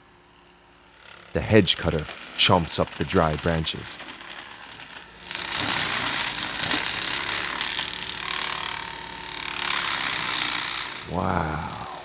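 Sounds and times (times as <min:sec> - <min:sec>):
crackle of breaking wood: 0:04.0 - 0:07.9.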